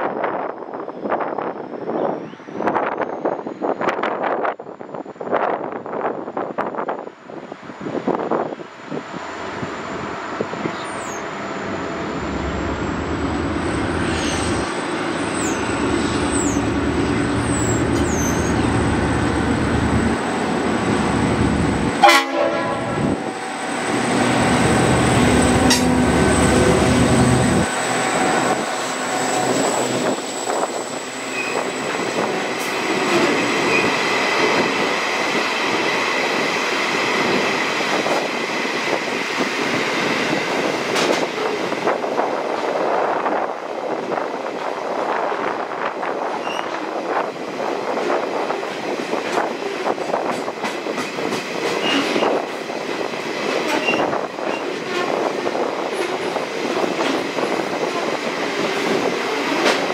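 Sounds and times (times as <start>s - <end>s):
diesel locomotive engine throbbing: 9.1s - 41.9s
train wheels clattering on rails: 20.1s - 45.0s, 45.9s - 59.9s.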